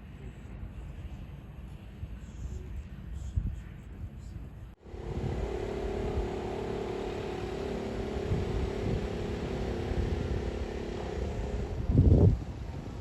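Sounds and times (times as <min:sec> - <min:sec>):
vehicle engine running: 0:04.8 - 0:13.0.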